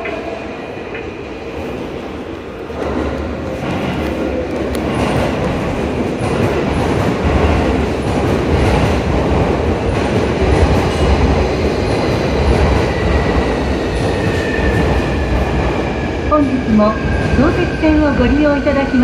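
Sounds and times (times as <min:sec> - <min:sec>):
train wheel clatter: 0:02.8 - 0:15.8.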